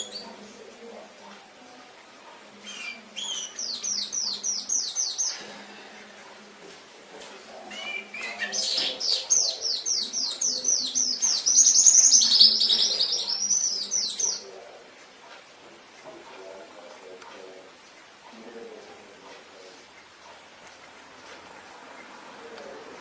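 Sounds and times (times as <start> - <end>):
canary singing: 0.0 - 0.9, 1.6 - 5.5, 7.5 - 14.7.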